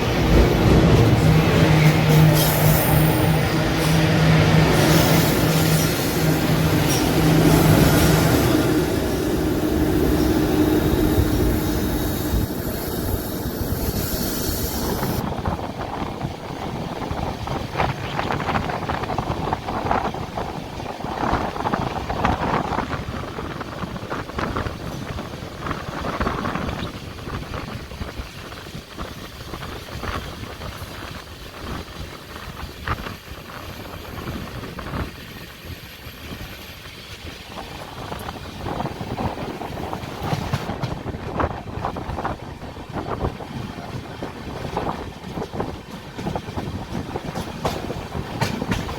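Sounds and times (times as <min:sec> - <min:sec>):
train coach rumbling on rails: 0:00.0 - 0:48.9
wind noise: 0:00.0 - 0:48.9
train knocks: 0:37.6 - 0:42.4, 0:44.2 - 0:48.9.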